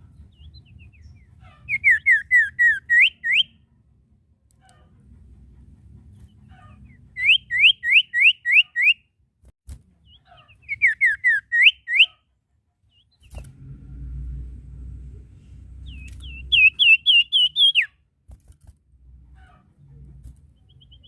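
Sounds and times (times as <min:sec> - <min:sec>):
bird whistling: 0:01.7 - 0:03.5, 0:07.2 - 0:09.0, 0:10.4 - 0:12.1, 0:15.8 - 0:18.0
low hum: 0:13.3 - 0:17.4.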